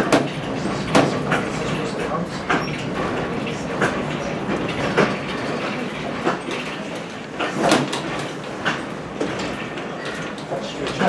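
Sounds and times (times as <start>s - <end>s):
train coach rumbling on track: 0.0s - 11.0s.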